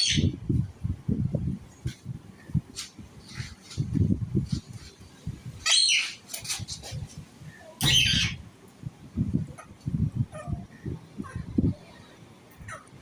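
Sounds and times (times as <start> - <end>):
parrot squawking: 0.0 - 0.3, 5.6 - 6.2, 7.8 - 8.4.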